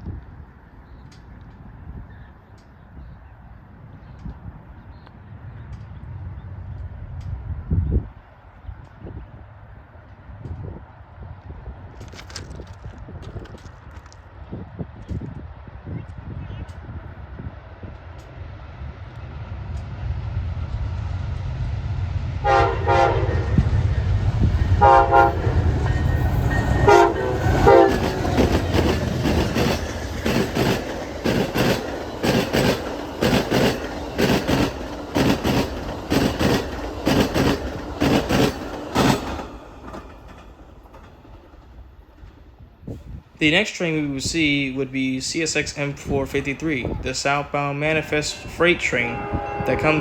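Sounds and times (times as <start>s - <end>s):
train rumbling: 0.0s - 50.0s
train wheels beating over rail joints: 11.7s - 50.0s
train horn blasts: 22.4s - 29.4s, 48.0s - 50.0s.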